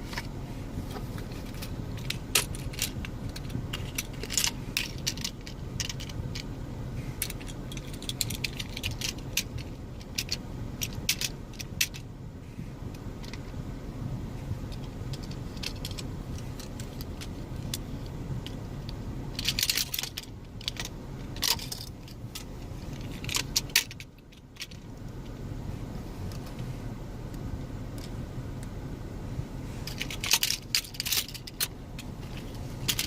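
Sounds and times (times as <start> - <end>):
steady low hum: 0.0 - 33.0
plastic toy clicks and rattles: 1.5 - 6.5, 7.2 - 12.0, 19.4 - 24.8, 29.9 - 33.0.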